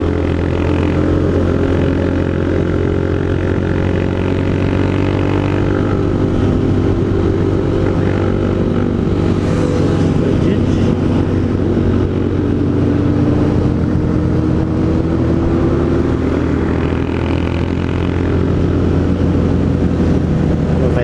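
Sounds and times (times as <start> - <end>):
motorcycle engine running steadily: 0.0 - 21.0.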